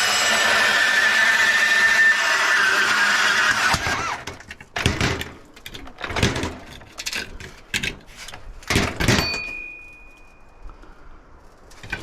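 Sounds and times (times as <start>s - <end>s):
power saw cutting metal: 0.0s - 4.4s
thin metallic ring: 9.2s - 10.6s.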